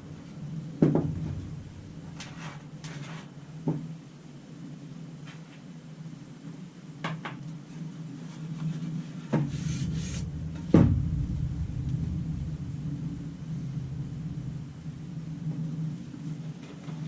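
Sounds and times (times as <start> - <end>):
low rumble: 0.0 - 2.8, 9.5 - 17.0
steady low hum: 0.0 - 5.2, 9.0 - 17.0.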